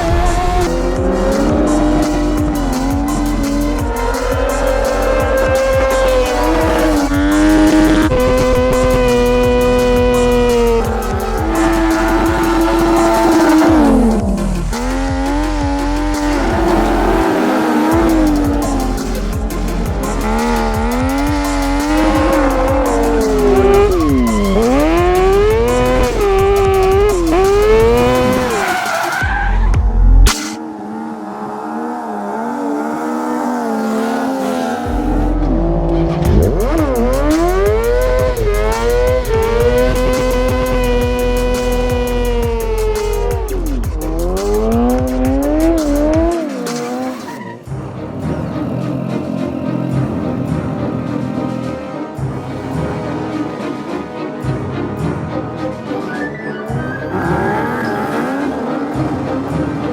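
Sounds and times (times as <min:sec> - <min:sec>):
music with steady beat: 0:00.0 - 0:30.6, 0:34.9 - 0:47.2, 0:47.8 - 0:56.4, 0:57.1 - 0:59.9
tyres squealing: 0:00.0 - 0:30.6, 0:35.9 - 0:47.7, 0:55.9 - 0:59.4
high-revving engine: 0:00.0 - 0:55.2, 0:56.6 - 0:59.9.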